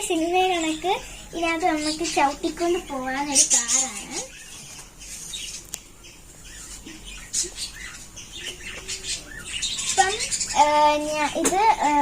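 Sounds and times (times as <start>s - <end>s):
child's voice: 0.0s - 4.3s, 9.9s - 12.0s.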